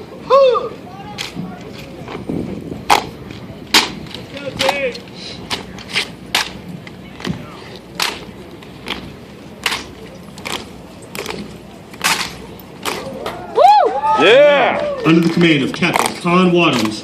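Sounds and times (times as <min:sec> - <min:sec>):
rifle slaps and clacks: 0:05.5 - 0:06.6, 0:08.0 - 0:09.0, 0:09.6 - 0:11.4, 0:12.0 - 0:13.1.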